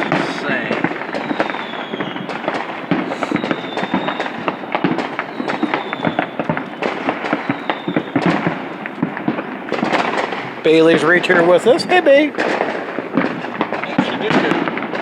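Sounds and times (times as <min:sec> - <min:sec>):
faint firework whistle: 0:00.0 - 0:11.1
fireworks pops and bangs: 0:00.0 - 0:15.0.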